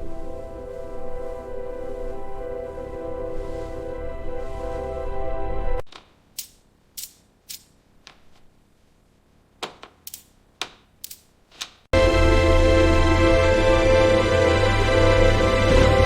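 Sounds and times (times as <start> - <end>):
music: 0.0 - 5.8, 12.0 - 16.0.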